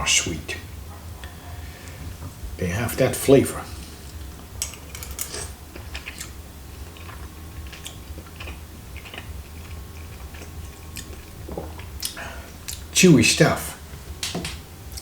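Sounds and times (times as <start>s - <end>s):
steady low hum: 0.0s - 15.0s
mouth clicks while chewing: 5.8s - 12.9s.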